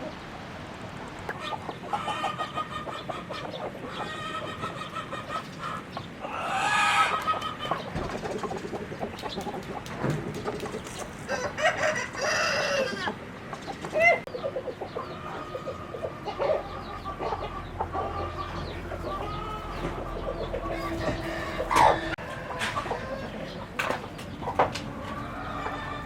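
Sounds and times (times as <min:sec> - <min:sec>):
chickens clucking: 0:00.0 - 0:26.0
rooster crowing: 0:11.3 - 0:13.2, 0:18.1 - 0:23.4, 0:25.0 - 0:26.0.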